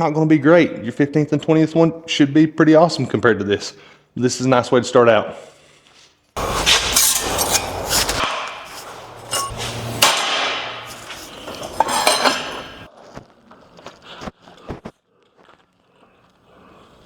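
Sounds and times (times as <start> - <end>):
hammer striking steel on anvil: 6.4 - 12.9.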